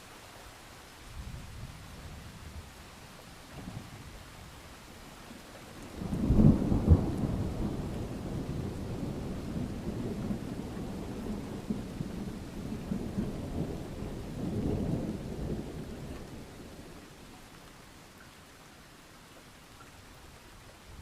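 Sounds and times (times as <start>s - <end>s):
steady rain: 0.0s - 21.0s
rolling thunder: 5.9s - 17.0s.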